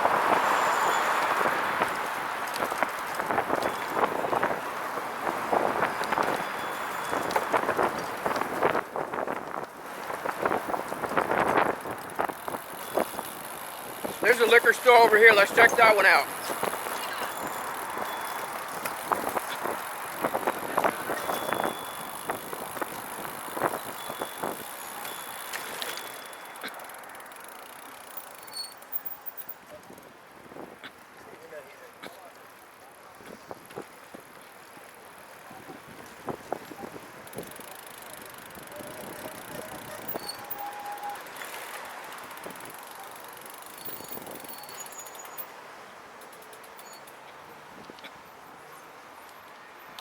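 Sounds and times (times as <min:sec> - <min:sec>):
tyre and road noise: 0:00.0 - 0:50.0
trike clicks and rattles: 0:06.0 - 0:30.0, 0:37.2 - 0:45.5, 0:46.2 - 0:48.2
short high squeak: 0:28.4 - 0:28.8, 0:40.0 - 0:41.3, 0:43.8 - 0:45.4.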